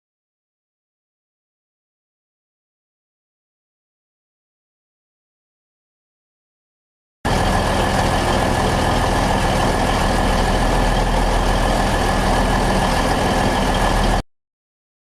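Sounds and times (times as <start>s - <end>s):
high whine: 7.3s - 14.2s
locomotive diesel engines running: 7.3s - 14.2s.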